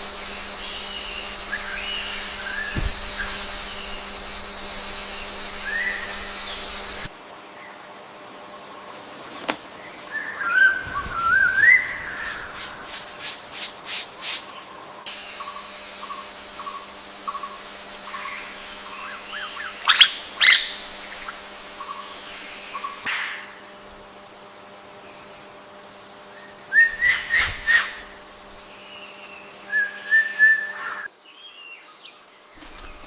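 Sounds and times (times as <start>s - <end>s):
birds calling: 0.0s - 7.1s, 14.4s - 23.1s
steady high drone: 0.0s - 7.1s, 15.1s - 30.1s.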